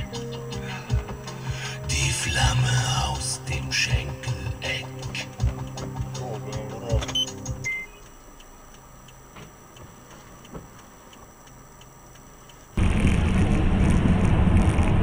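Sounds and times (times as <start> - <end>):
faint regular ticking: 0.0 - 12.8
wind and road noise from vehicle: 12.8 - 15.0.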